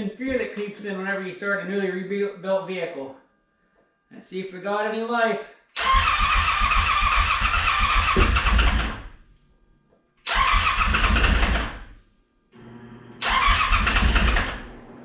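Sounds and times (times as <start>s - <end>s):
engine cranking on starter: 5.8s - 9.1s, 10.3s - 11.9s, 13.2s - 14.9s.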